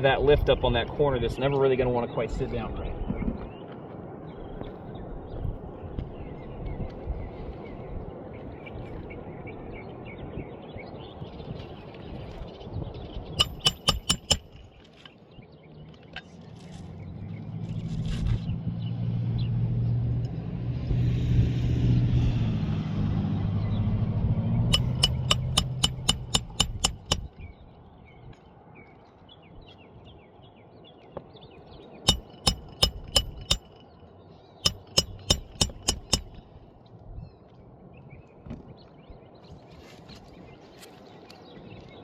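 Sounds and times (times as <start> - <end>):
hammer tapping roofing nails: 13.4 - 14.5, 24.7 - 27.3, 32.1 - 33.7, 34.7 - 36.4.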